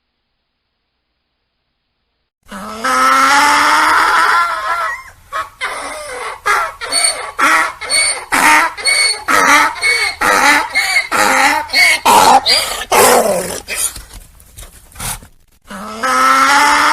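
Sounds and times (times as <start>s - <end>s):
donkey braying: 2.5s - 14.0s.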